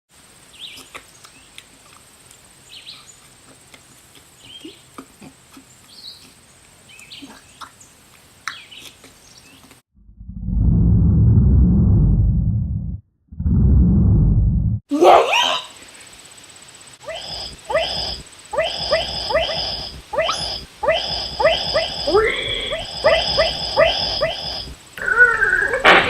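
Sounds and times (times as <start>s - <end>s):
muffled distorted low blast: 10.0s - 14.8s
high insect whine: 15.3s - 26.0s
birds chirping: 17.0s - 25.8s.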